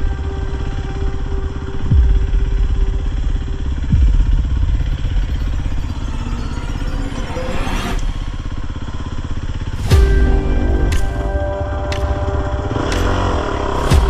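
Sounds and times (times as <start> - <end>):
deep thumps: 1.9 - 5.9
dirt bike engine running: 8.2 - 14.0.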